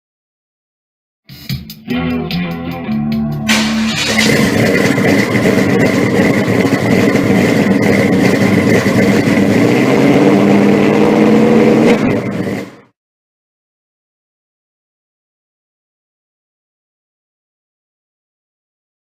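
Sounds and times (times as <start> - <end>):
engine running: 1.9 - 12.9.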